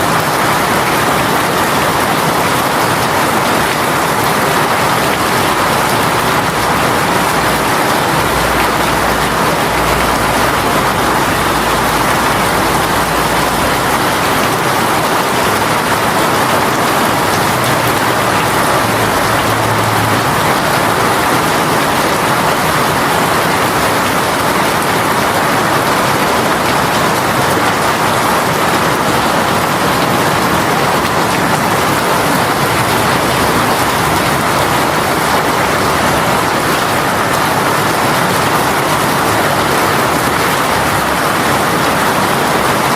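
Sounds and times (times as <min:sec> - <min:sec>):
heavy rain pouring: 0:00.0 - 0:42.9.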